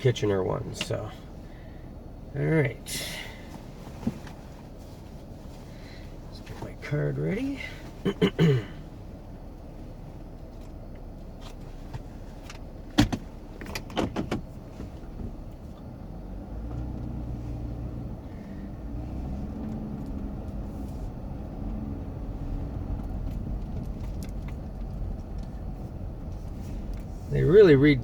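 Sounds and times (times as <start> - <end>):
vehicle engine and tyres humming: 0.0 - 28.0
sharp clicks and rattles: 10.5 - 15.1, 22.7 - 27.7.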